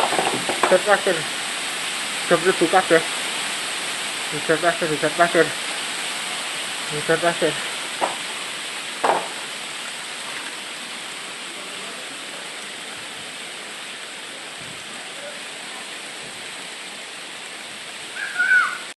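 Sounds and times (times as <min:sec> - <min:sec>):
loud voice: 0:04.3 - 0:05.6, 0:06.9 - 0:07.6.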